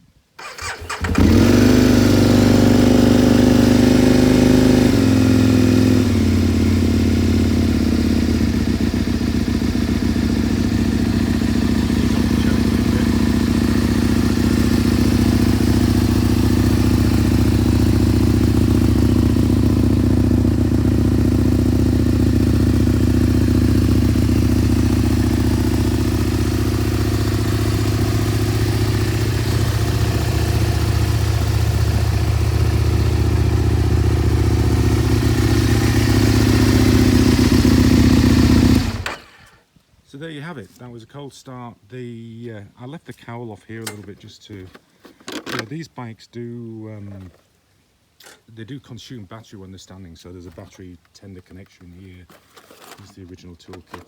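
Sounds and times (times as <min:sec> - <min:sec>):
motorcycle engine idling: 0:00.4 - 0:39.6.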